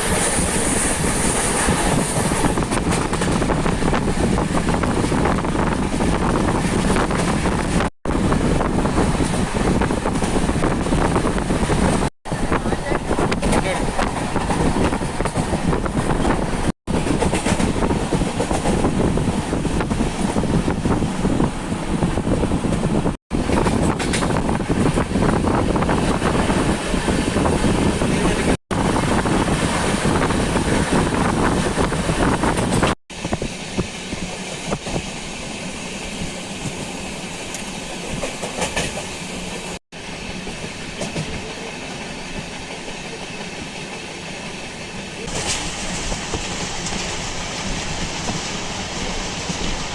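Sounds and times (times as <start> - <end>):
train running rumble: 0.0 - 49.9
train wheels clattering: 13.2 - 19.0, 37.5 - 39.8.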